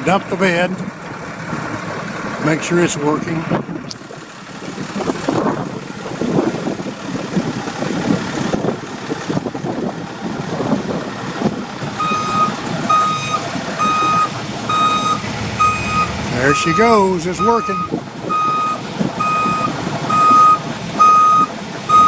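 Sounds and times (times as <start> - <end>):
truck engine rattling: 0.0 - 22.0
back-up alarm beeping: 12.0 - 22.0.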